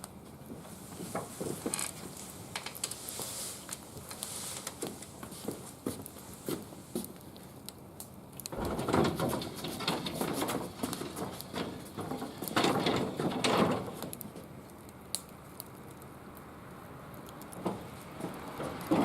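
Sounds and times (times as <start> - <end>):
wood fire crackling and popping: 0.0 - 19.0
rustling and knocking: 8.6 - 14.2, 17.6 - 19.0.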